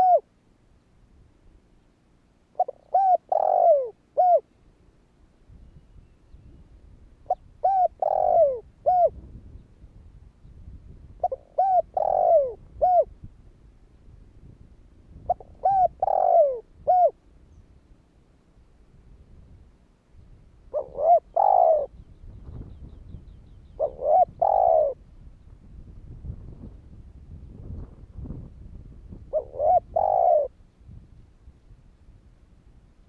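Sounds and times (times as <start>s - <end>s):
dove cooing: 0.0s - 0.3s, 2.5s - 4.5s, 7.2s - 9.4s, 11.2s - 13.1s, 15.2s - 17.2s, 20.7s - 25.0s, 29.1s - 30.6s.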